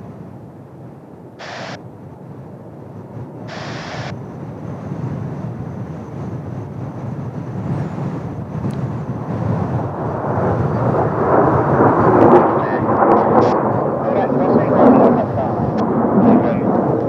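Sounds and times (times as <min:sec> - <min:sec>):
distant jet engine rumble: 0:00.0 - 0:17.0
short bursts of hiss: 0:01.4 - 0:01.8, 0:03.5 - 0:04.1.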